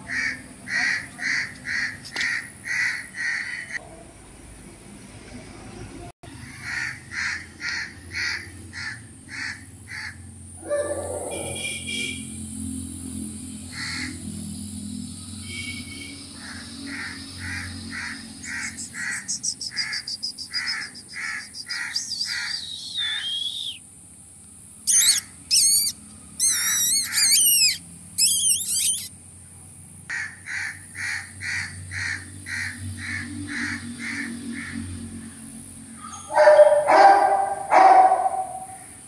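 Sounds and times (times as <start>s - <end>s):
high warbling bird chirps: 15.2s - 23.8s, 24.8s - 29.1s
bird short repeated call: 18.4s - 23.8s, 24.9s - 29.1s.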